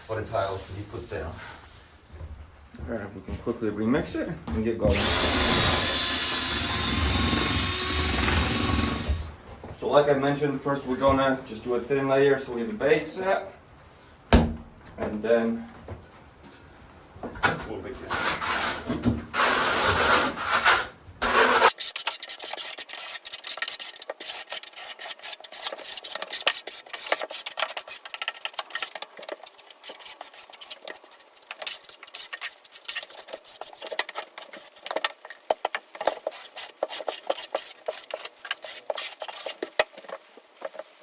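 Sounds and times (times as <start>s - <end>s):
trowel scraping mortar on board: 18.1s - 40.9s.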